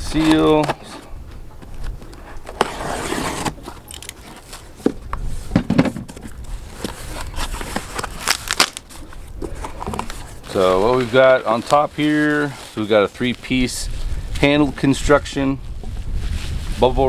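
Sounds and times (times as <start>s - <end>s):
knocks and scrapes of parts: 2.4s - 12.1s
packing material rustling: 6.2s - 15.0s.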